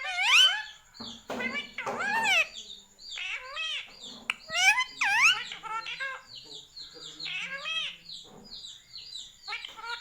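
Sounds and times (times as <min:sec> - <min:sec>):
parrot squawking: 0:00.0 - 0:00.7, 0:01.4 - 0:02.6, 0:03.2 - 0:06.3, 0:07.2 - 0:08.0, 0:09.5 - 0:10.0
parrot chirping: 0:00.0 - 0:10.0.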